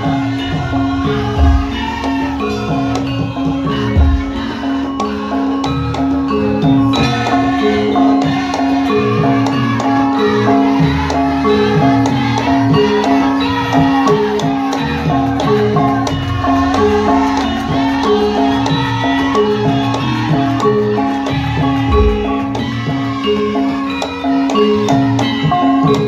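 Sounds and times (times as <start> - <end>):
gamelan ensemble playing: 0.0 - 26.0
sharp drum strokes: 21.8 - 23.2.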